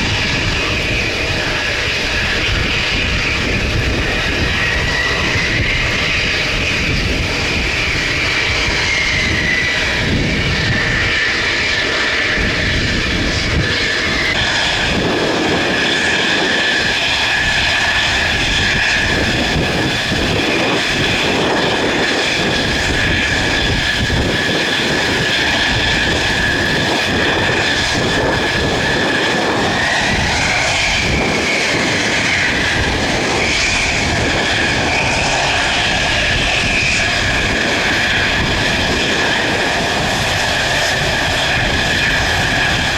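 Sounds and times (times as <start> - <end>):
jet engines whining: 0.0 - 42.9
wind buffeting microphone: 0.0 - 42.9.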